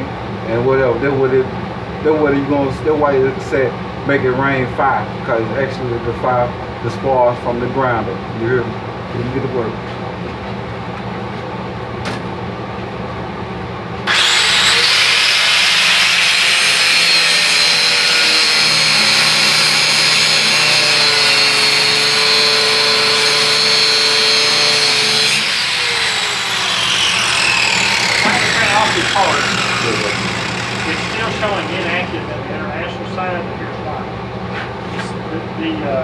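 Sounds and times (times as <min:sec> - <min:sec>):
steady background hum: 0:00.0 - 0:14.1, 0:26.0 - 0:36.0
angle grinder grinding steel: 0:14.1 - 0:32.9.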